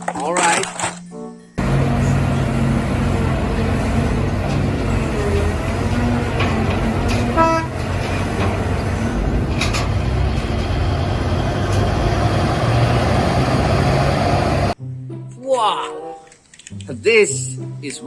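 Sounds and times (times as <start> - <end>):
heavy vehicle engine running: 1.6 - 14.8
short horn toot: 7.3 - 7.9.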